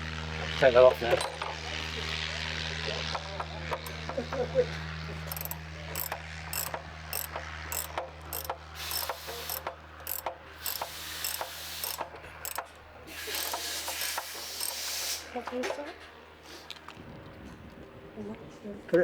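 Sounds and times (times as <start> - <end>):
socket ratchet wrench clicking: 5.3 - 15.2.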